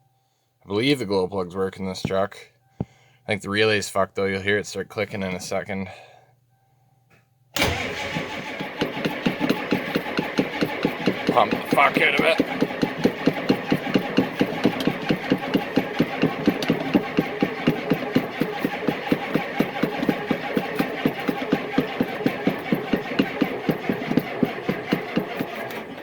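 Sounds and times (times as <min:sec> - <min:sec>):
diesel engine cranking without starting: 0:07.6 - 0:26.0.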